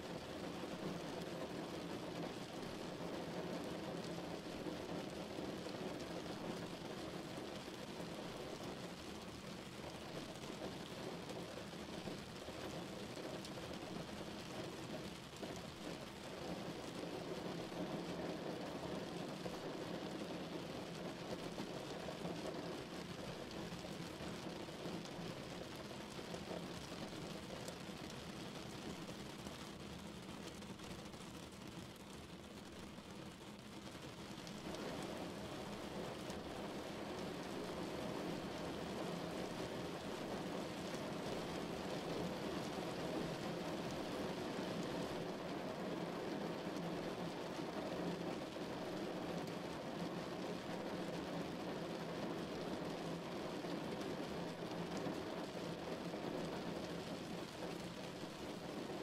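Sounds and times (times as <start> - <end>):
steady rain outside window: 0.0 - 59.0.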